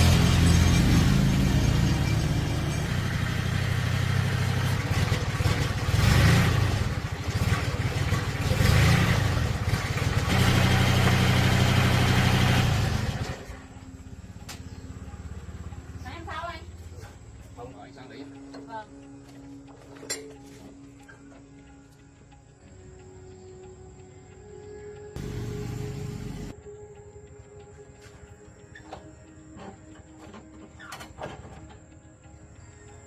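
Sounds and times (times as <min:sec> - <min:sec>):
old tractor engine revving: 0:00.0 - 0:17.1, 0:25.2 - 0:26.5.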